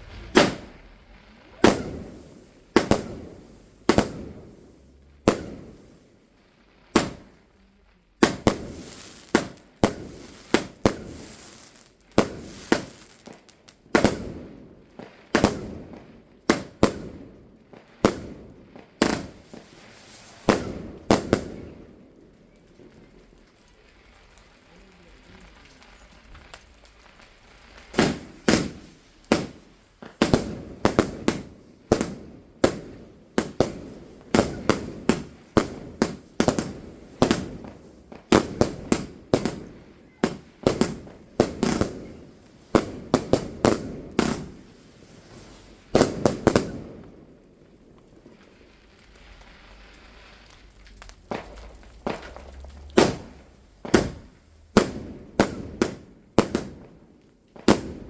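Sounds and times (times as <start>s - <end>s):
fireworks bangs: 0.0s - 58.0s.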